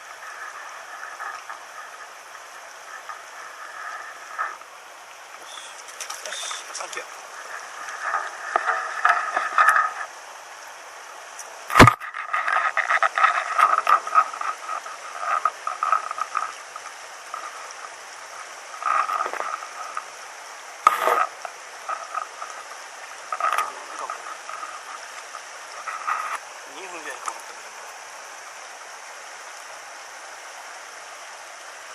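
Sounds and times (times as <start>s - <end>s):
stream rushing: 0.0s - 31.9s
fish splashing water: 5.4s - 10.2s
sharp knock: 11.8s - 12.0s.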